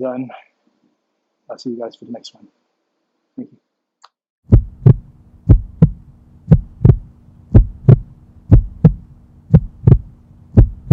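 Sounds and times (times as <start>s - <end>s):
heartbeat thumps: 4.5s - 10.9s
low steady hum: 4.5s - 10.9s.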